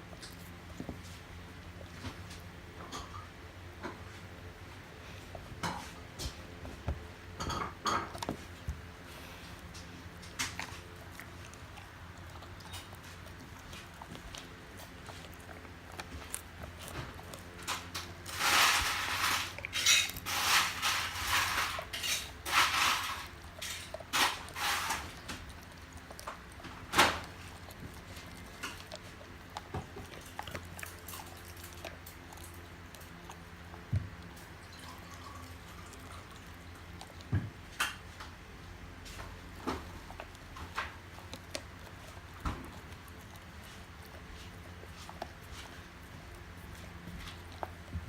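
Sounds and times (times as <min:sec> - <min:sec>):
dog crunching a chew: 0:00.0 - 0:48.0.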